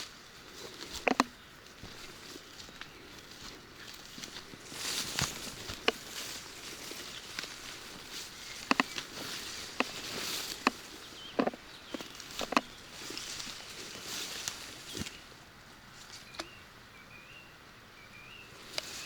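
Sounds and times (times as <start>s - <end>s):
footsteps on wet path: 0.0s - 15.4s.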